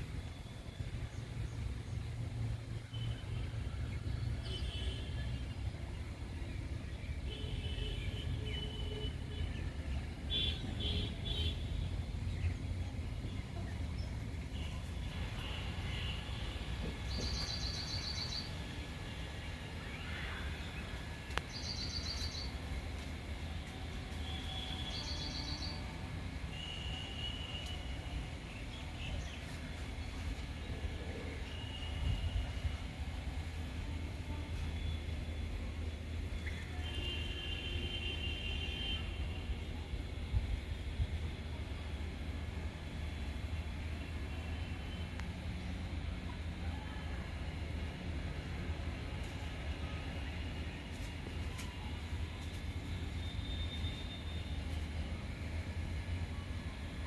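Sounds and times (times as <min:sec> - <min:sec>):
birds chirping: 0:16.9 - 0:19.0.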